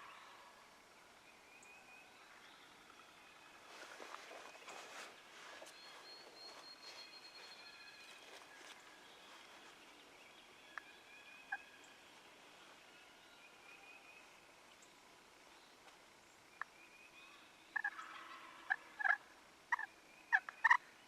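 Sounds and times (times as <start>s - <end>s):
songbirds singing: 0.0s - 21.0s
distant turkey gobbling: 17.7s - 20.9s.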